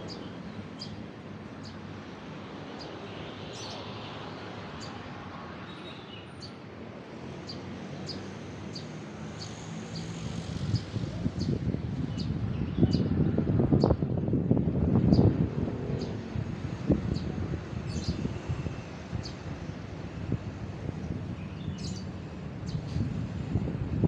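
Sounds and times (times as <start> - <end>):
small birds chirping: 0.0 - 1.0, 2.7 - 6.6, 7.3 - 14.0, 17.0 - 19.4, 21.0 - 23.2
road traffic hum: 0.0 - 24.0.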